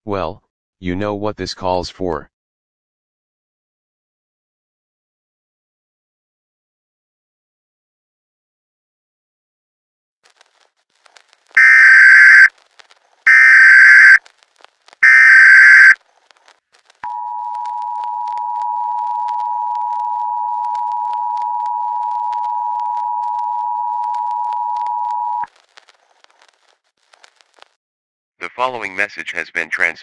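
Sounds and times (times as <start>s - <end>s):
shrill data tone bursts: 11.6s - 12.5s, 13.3s - 14.2s, 15.0s - 16.0s
two-tone alert signal: 11.6s - 12.5s, 13.3s - 14.2s, 15.0s - 16.0s.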